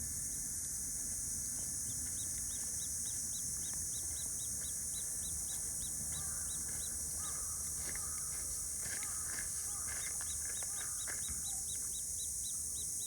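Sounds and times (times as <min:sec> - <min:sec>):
kingfisher calling: 0:02.5 - 0:12.9.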